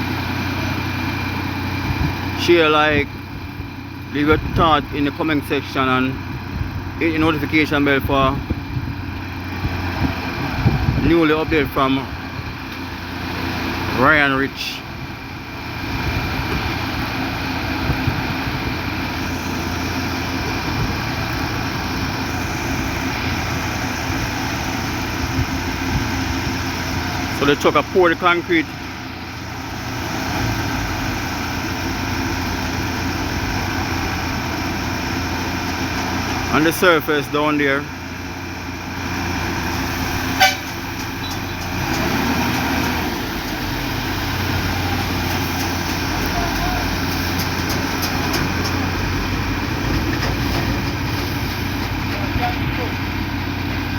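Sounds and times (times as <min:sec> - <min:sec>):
diesel truck engine running: 0:00.0 - 0:53.9
horn toot: 0:40.3 - 0:40.8.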